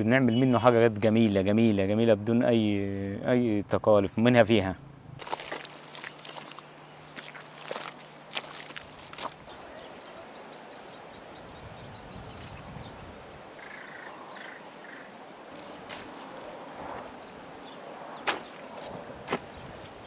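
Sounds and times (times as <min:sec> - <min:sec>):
steady background hiss: 0:09.4 - 0:20.0
faint animal calls: 0:13.5 - 0:16.4
sharp knocks: 0:18.2 - 0:18.6.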